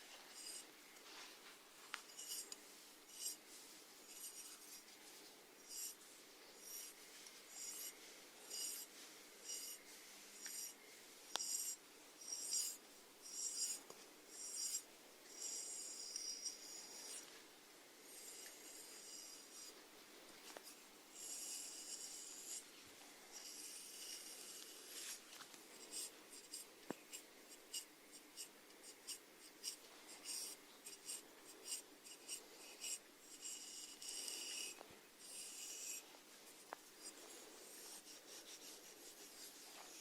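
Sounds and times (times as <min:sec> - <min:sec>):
snails rasping: 0:00.3 - 0:00.7, 0:02.0 - 0:03.4, 0:06.6 - 0:09.8, 0:21.2 - 0:22.7, 0:23.3 - 0:40.0.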